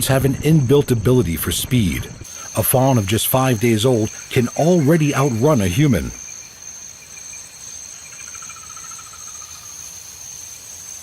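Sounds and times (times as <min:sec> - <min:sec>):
insects chirping drone: 0:00.0 - 0:11.0.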